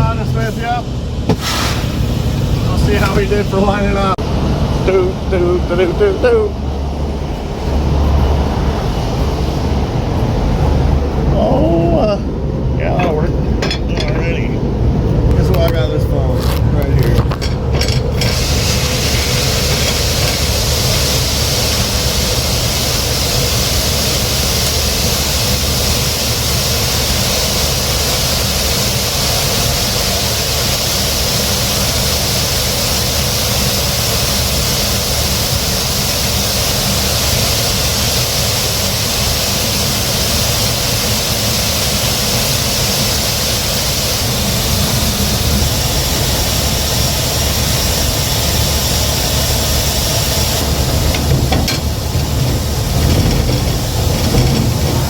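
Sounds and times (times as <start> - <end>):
constant hiss: 0.0 - 4.2
diesel truck droning: 0.0 - 55.0
machinery drone: 0.0 - 55.0
grain pouring from hopper: 1.3 - 2.1, 18.1 - 55.0.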